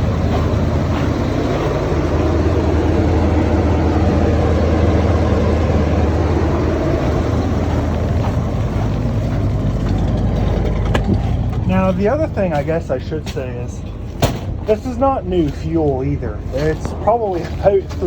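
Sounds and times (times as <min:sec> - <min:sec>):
car engine at fast idle: 0:00.0 - 0:12.9
exhaust leak: 0:02.0 - 0:18.0.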